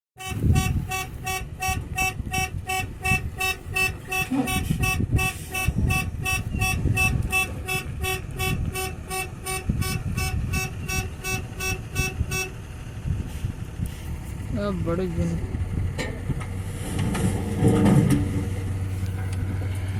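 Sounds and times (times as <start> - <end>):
horn-like electronic beeping: 0.2 - 12.6, 18.9 - 19.6
low rumble: 0.3 - 19.9.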